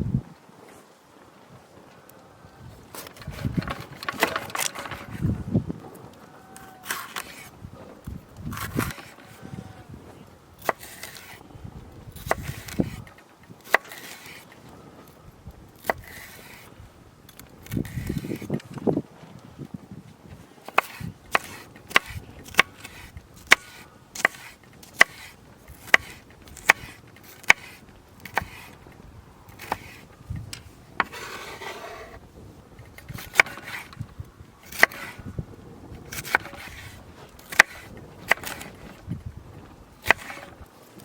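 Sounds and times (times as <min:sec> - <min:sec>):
knife chopping on wooden board: 0:12.2 - 0:13.0.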